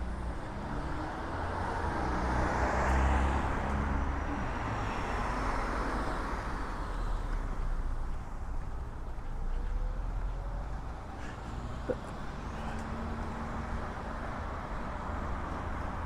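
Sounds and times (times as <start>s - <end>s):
car passing: 0.0s - 16.0s
low traffic rumble: 0.0s - 16.0s.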